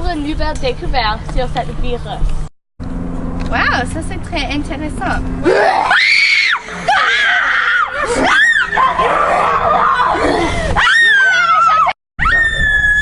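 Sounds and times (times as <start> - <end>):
people screaming: 5.4 - 13.0.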